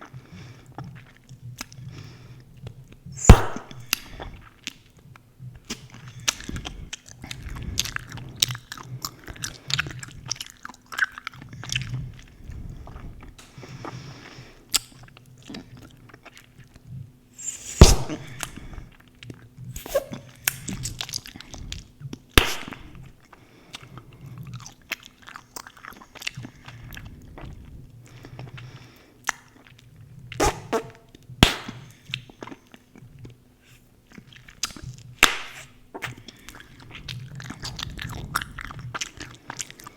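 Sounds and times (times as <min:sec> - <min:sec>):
gum snapping: 0:22.4 - 0:23.1, 0:30.4 - 0:31.9, 0:34.6 - 0:35.7.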